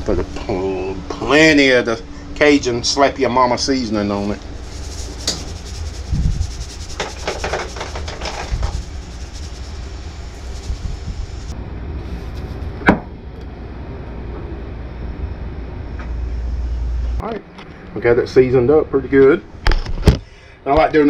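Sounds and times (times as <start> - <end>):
steady low rumble: 0.0 - 21.0
seasoning shaker rattling: 4.5 - 11.5.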